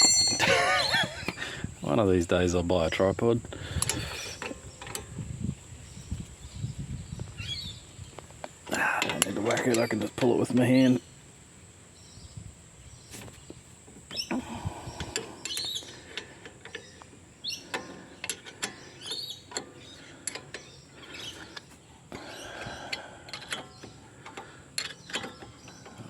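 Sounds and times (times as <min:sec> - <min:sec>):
spanner clicking on bolt: 0:15.1 - 0:21.7, 0:22.9 - 0:26.0.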